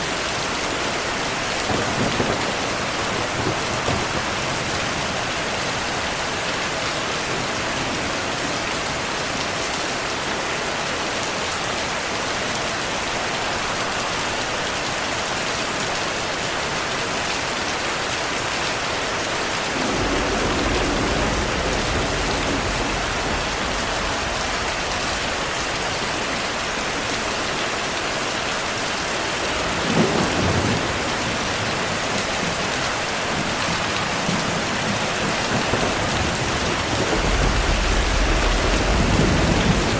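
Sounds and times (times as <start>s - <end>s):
heavy rainfall: 0.0s - 39.9s
low thunder rumble: 19.7s - 27.4s, 29.6s - 39.9s.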